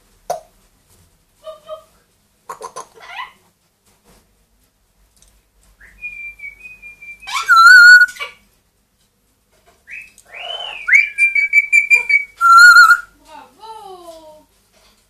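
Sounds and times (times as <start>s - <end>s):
parrot whistling: 5.9s - 8.3s, 9.9s - 13.1s.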